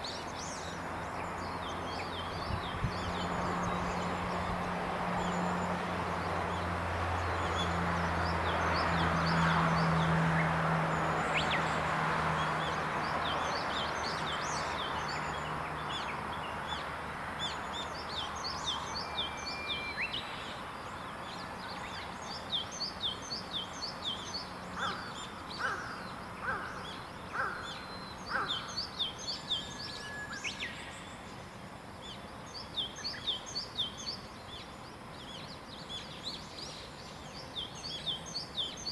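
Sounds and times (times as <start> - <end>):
birds chirping and trilling: 0.0 - 38.9
lower bird calls: 21.3 - 31.4.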